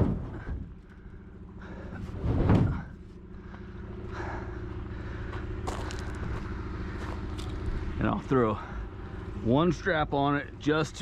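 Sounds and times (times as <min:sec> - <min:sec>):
truck engine idling: 0:00.0 - 0:11.0
heavy thump and scrape: 0:02.0 - 0:03.0.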